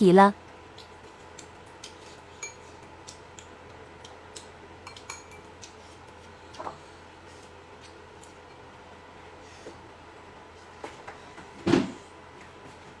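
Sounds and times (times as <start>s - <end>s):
tableware clinking: 2.4s - 2.7s, 4.8s - 5.5s.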